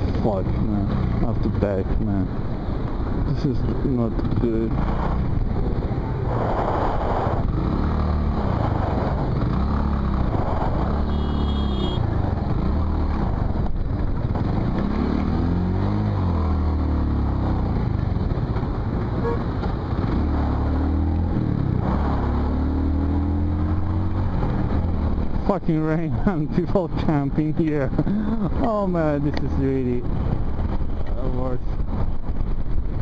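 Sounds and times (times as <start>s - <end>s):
motorcycle engine revving: 4.1s - 25.4s
short high tone: 19.2s - 19.5s.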